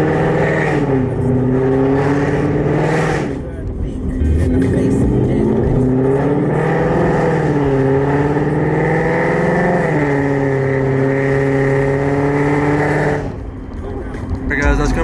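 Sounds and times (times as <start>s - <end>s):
car engine at high revs: 0.0s - 14.6s.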